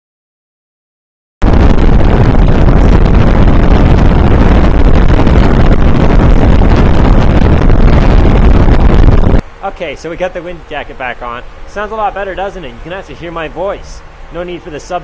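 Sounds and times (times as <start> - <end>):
wind noise on microphone: 1.4 - 9.5.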